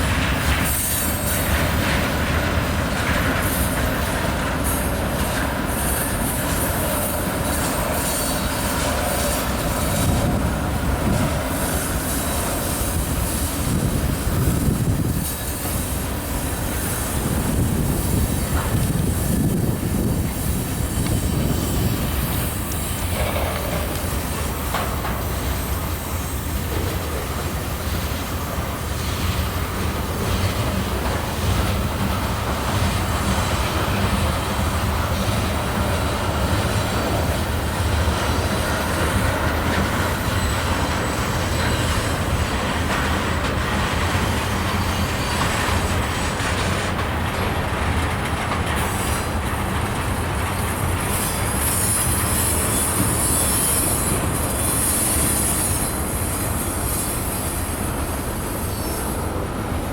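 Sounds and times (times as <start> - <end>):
freight train rolling on track: 0.0 - 59.9.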